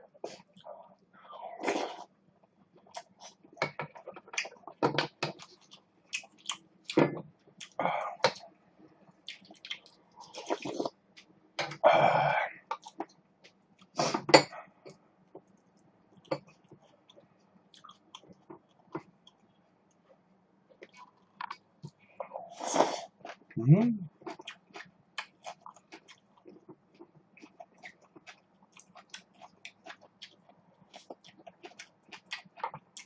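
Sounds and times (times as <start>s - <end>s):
chewing: 9.1s - 11.3s, 15.3s - 20.1s, 24.2s - 33.0s
mouth or throat sound: 23.6s - 24.1s.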